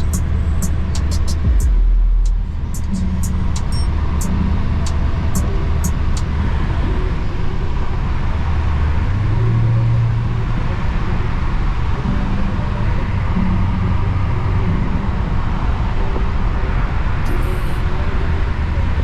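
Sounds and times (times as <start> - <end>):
sharp ticks: 0.0 - 6.3
car engine running: 0.0 - 12.1
road noise: 0.0 - 19.0.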